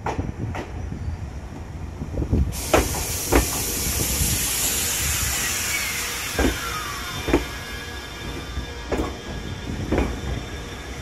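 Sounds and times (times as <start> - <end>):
train whine: 1.6 - 11.0
air hissing: 2.5 - 11.0
wheels clunking over rail joint: 5.2 - 11.0.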